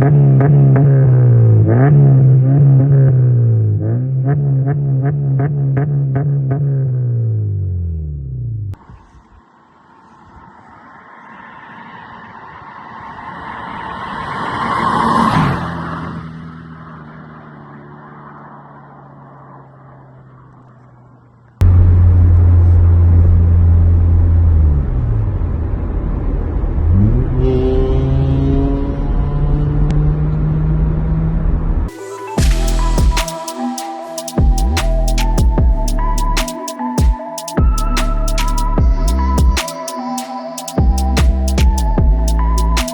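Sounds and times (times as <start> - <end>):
car engine revving close by: 0.0 - 7.6, 21.6 - 31.9
car driving past: 9.4 - 32.9.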